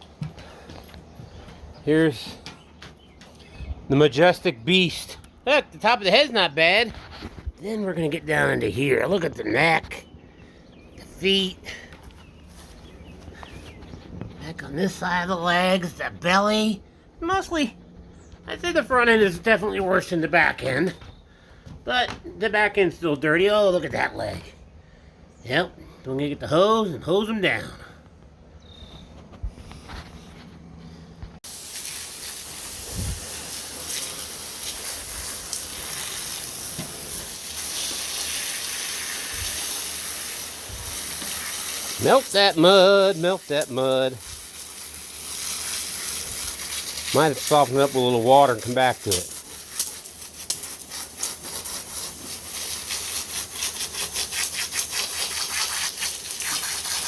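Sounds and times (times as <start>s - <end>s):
garden hose spraying water: 3.9s - 10.1s, 11.0s - 17.7s, 31.4s - 57.0s
hand scrubbing wet dog coat: 31.4s - 57.0s.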